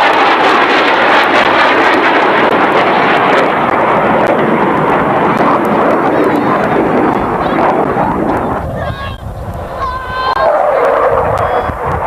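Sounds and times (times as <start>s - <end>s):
aircraft engines rushing: 0.0s - 12.0s.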